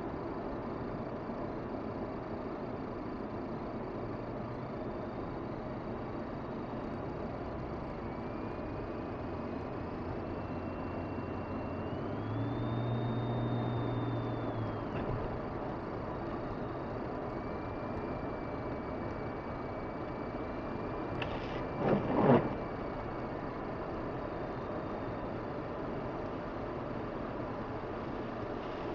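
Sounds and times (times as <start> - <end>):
road and tyre noise: 0.0 - 28.9
low hum: 3.1 - 25.0.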